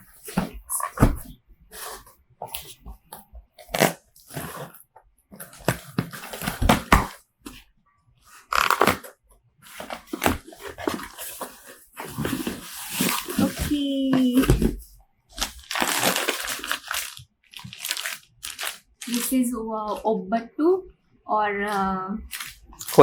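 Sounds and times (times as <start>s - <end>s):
plastic packaging crinkling and tearing: 8.4s - 9.1s, 15.3s - 20.0s, 22.3s - 23.0s.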